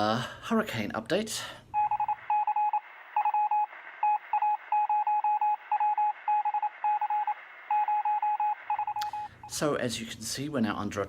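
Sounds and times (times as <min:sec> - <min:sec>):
electronic morse code beeps: 0:01.8 - 0:09.6.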